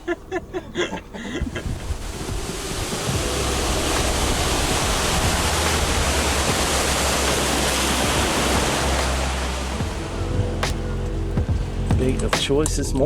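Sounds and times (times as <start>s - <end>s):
boat engine hum: 0.0s - 13.0s
rush of spray and wind: 1.4s - 10.9s.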